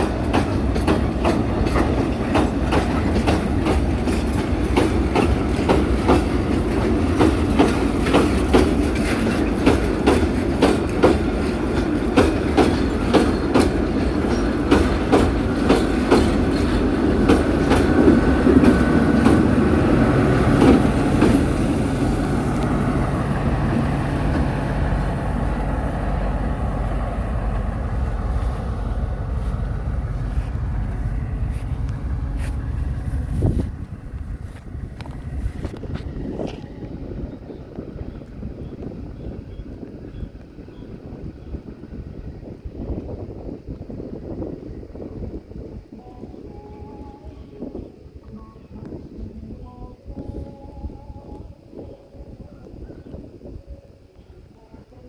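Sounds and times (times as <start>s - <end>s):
train wheels clacking on rail joints: 0.0s - 40.7s
train wagons rumbling: 0.0s - 55.0s.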